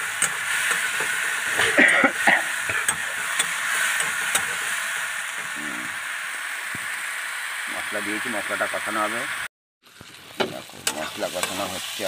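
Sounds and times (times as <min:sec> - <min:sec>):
onions sizzling in hot oil: 0:00.0 - 0:12.0
metal spatula scraping a pan: 0:02.6 - 0:05.4.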